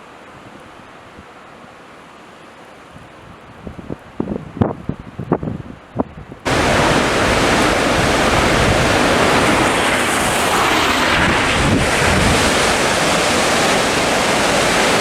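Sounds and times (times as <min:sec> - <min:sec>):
blizzard wind buffeting microphone: 0:03.0 - 0:15.0.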